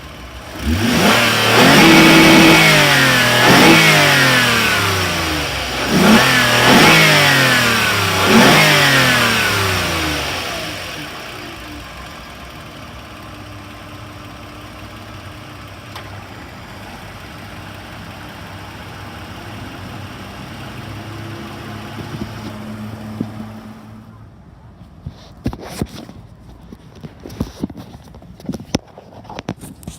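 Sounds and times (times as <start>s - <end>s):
car engine revving and idling: 0.0s - 24.2s.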